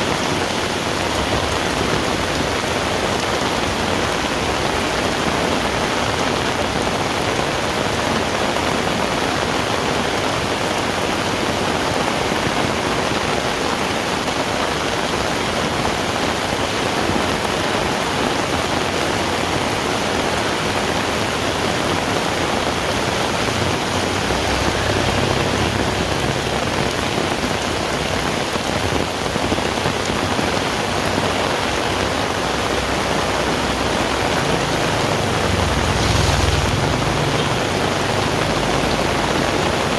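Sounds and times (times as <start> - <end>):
heavy rain falling: 0.0 - 39.9
low rumble: 34.2 - 38.4.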